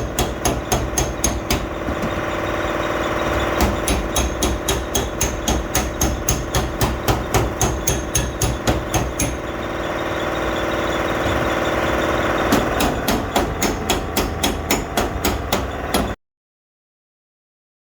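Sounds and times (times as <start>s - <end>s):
hammer tapping sheet metal: 0.0s - 2.2s, 3.3s - 9.6s, 12.4s - 16.2s
machine hum: 0.0s - 16.2s.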